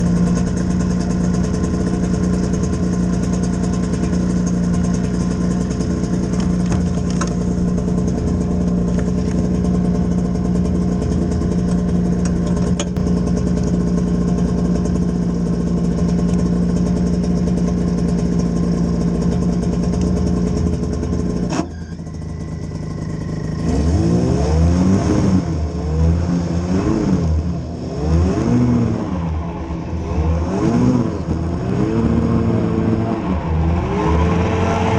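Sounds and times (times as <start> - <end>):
vehicle engine idling: 0.0 - 34.9
engine revving: 20.0 - 34.9.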